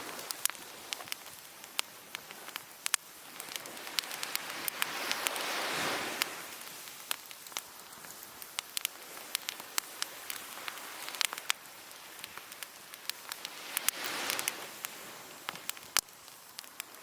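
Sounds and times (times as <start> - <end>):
wave washing on shore: 0.0 - 17.0
wood fire crackling and popping: 0.0 - 17.0.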